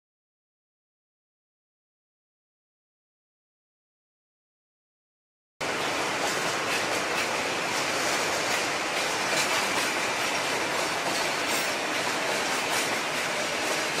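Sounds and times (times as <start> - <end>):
freight wagons clattering on rails: 5.6 - 14.0.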